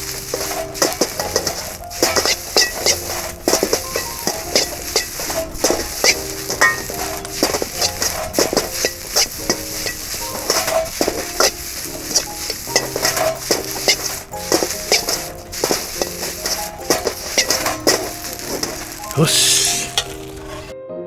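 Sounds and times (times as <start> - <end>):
fried rice sizzling in a pan: 0.0 - 20.7
utensil scraping metal pan: 0.0 - 20.7.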